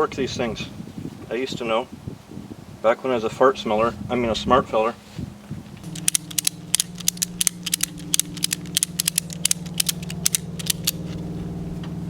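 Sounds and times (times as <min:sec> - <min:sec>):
steady low hum: 0:03.4 - 0:12.0
ratchet strap clicking: 0:05.8 - 0:11.0.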